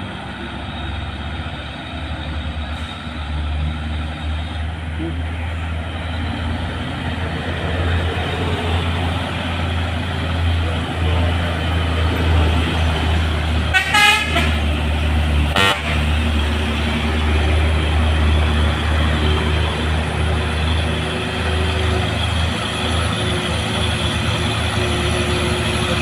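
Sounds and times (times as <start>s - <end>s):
truck diesel engine under load: 0.0s - 26.0s
truck horn: 13.6s - 14.9s, 15.5s - 16.3s.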